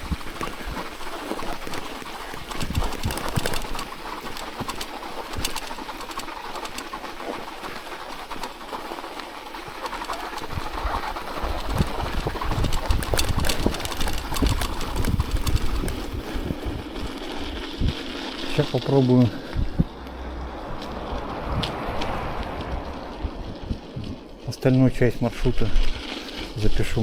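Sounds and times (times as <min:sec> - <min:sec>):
clicks and crunches: 0:00.0 - 0:07.4, 0:08.8 - 0:21.0
wind rumbling on microphone: 0:00.0 - 0:27.0.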